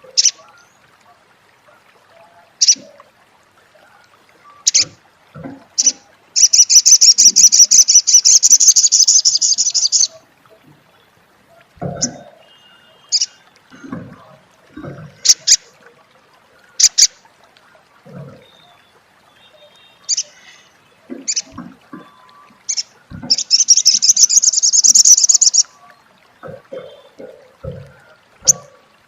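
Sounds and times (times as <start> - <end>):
bird rapid chattering: 4.7 - 4.9, 5.8 - 10.1, 22.7 - 25.7
bird chirping: 5.8 - 10.2, 21.2 - 25.7.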